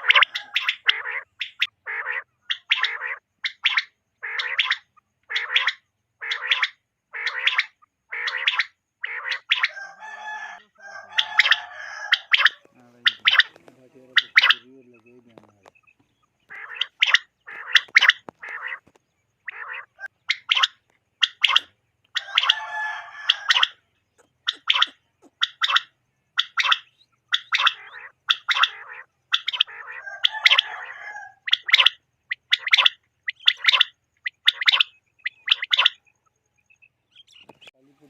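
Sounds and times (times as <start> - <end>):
quail calling: 0.0 - 38.0.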